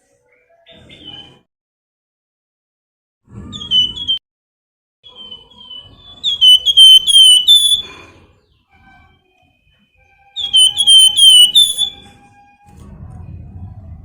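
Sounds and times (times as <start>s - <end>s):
songbird whistling notes: 3.5s - 4.2s, 5.0s - 8.1s, 10.3s - 12.3s.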